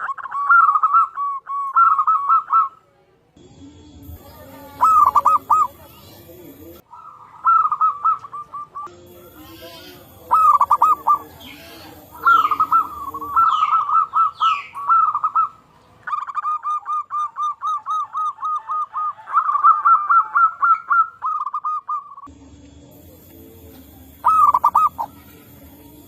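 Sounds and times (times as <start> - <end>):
doves cooing rapidly: 0.0 - 2.8, 4.1 - 26.0
birds descending whistles: 4.8 - 6.1, 6.9 - 8.9, 10.3 - 22.3, 24.2 - 25.2.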